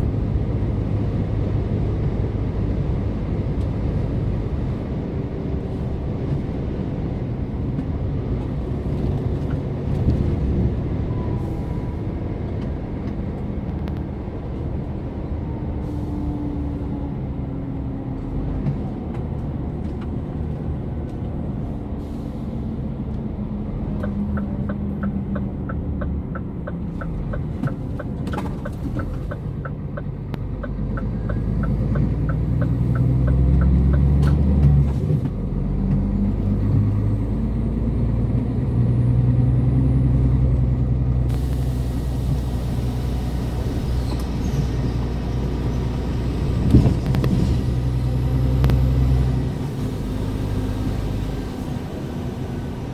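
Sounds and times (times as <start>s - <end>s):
truck diesel engine droning: 0.0s - 52.9s
turn signal ticking: 23.0s - 36.2s, 45.6s - 51.9s.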